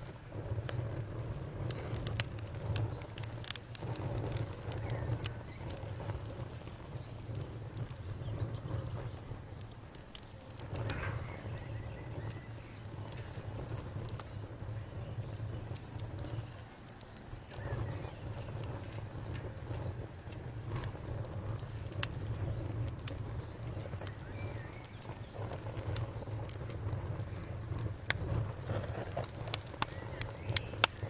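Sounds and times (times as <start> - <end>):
crickets chirping: 0.0 - 31.0
wood fire crackling: 0.0 - 31.0.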